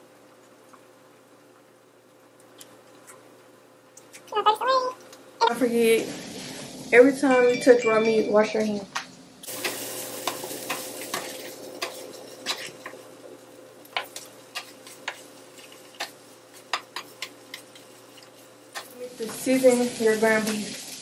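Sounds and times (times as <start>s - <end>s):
food sizzling in pans: 5.5s - 21.0s.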